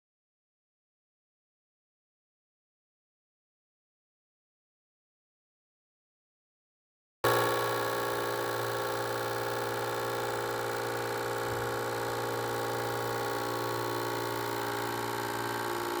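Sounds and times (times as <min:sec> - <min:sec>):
propeller blades buzzing on plastic: 0:07.2 - 0:16.0.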